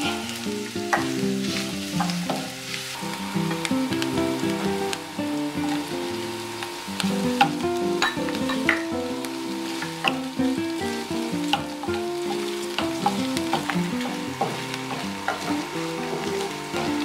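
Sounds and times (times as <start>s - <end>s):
food sizzling in a frying pan: 0.0s - 17.0s
wooden spatula scraping a pan: 11.4s - 16.9s.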